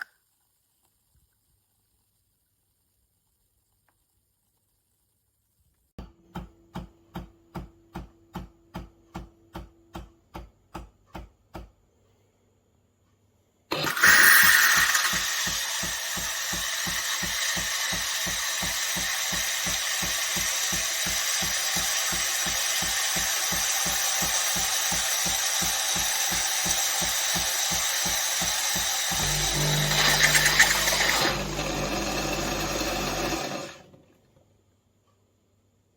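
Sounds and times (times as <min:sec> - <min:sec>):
espresso machine pump pulsing: 0:13.7 - 0:34.0.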